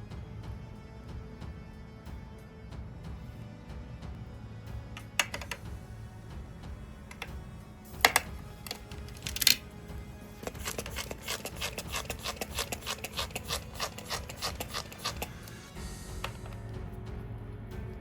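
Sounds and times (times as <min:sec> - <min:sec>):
background music: 0:00.0 - 0:18.0
sharp taps on metal part: 0:08.0 - 0:09.6
rapid rubbing strokes: 0:10.4 - 0:16.6.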